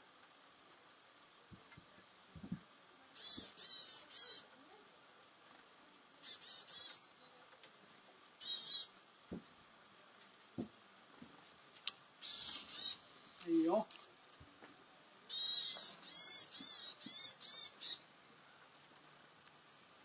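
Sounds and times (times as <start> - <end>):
small bird high wavering calls: 3.2 - 4.6, 6.2 - 7.3, 8.4 - 9.2, 12.2 - 13.1, 14.2 - 19.0, 19.6 - 20.0.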